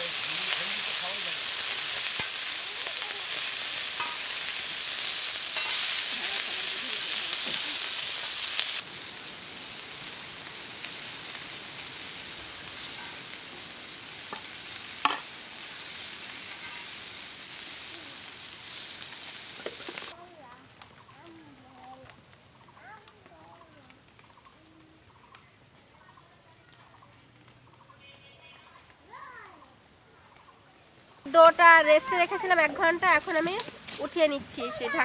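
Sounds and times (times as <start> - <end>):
skewers sizzling in a pan: 0.0 - 25.4, 31.3 - 35.0
metal spatula scraping a pan: 3.3 - 4.5, 5.5 - 6.1, 12.8 - 13.2, 16.4 - 17.1.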